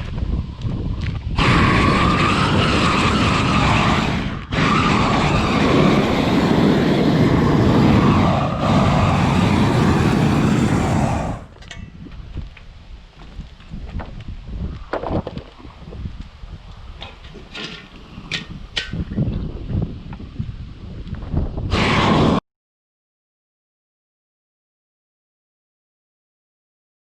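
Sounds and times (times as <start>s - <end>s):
torch flame burning: 0.0s - 11.8s, 19.9s - 22.4s.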